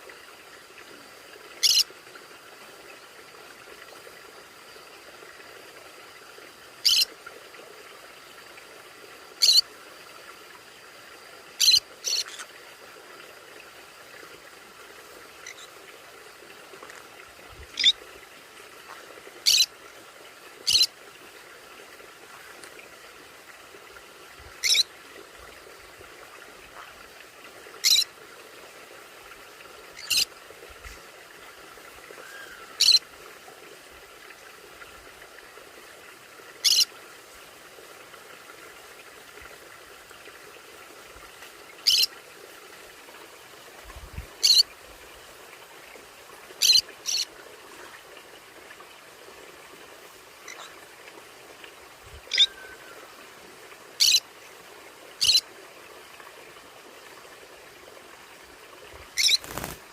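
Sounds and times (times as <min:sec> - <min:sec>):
faint steady hiss: 0:00.0 - 0:59.9
parrot squawking: 0:19.4 - 0:19.7, 0:24.6 - 0:24.8, 0:41.9 - 0:42.1, 0:52.3 - 0:52.6, 0:59.2 - 0:59.7.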